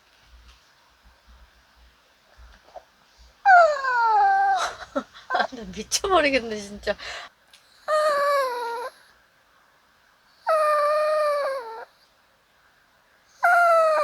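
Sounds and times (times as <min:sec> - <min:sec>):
dog whining: 0:03.4 - 0:05.5, 0:07.8 - 0:09.1, 0:10.4 - 0:12.0, 0:13.4 - 0:14.0.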